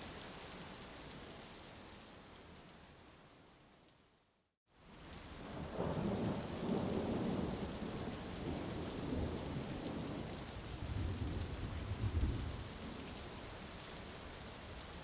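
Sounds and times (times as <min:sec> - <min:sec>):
heavy rain: 0:00.0 - 0:03.6, 0:04.7 - 0:15.0
thunder rumbling: 0:05.5 - 0:10.2.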